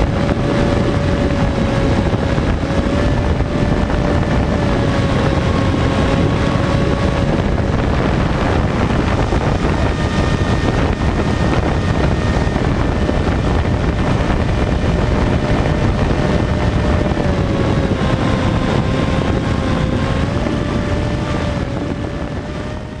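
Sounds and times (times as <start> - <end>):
electric motor and propeller: 0.0 - 23.0
wind rushing over microphone: 0.0 - 23.0.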